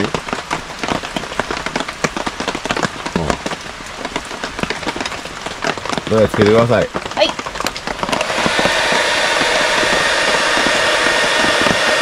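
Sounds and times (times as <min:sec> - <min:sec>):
rain pattering on a tarp: 0:00.0 - 0:12.0.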